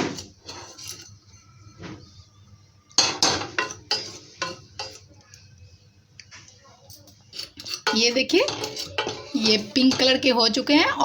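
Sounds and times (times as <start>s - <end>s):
spatula scraping a steel pan: 0.0s - 2.0s, 3.0s - 5.0s, 7.3s - 10.4s.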